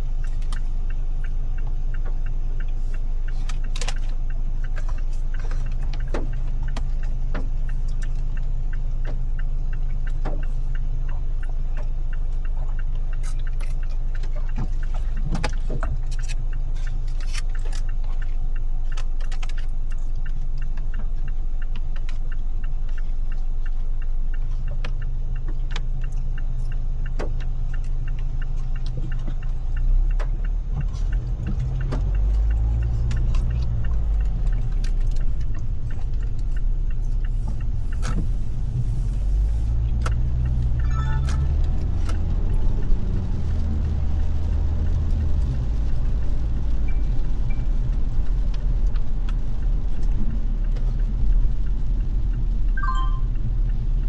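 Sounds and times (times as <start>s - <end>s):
car engine and road hum: 0.0s - 54.0s
raindrops tapping on car: 11.7s - 40.8s, 41.4s - 54.0s.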